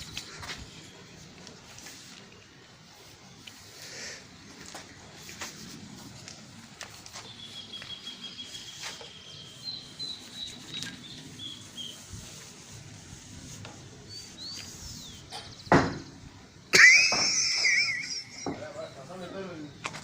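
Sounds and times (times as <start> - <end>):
birds chirping and whistling: 7.1 - 12.4, 14.0 - 16.2.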